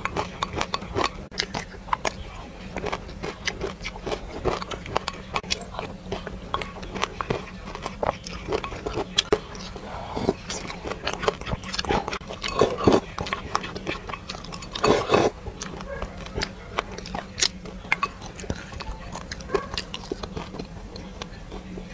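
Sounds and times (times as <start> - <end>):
chewing and crunching seeds: 0.0 - 21.9
spoon scraping glass bowl: 6.5 - 20.5.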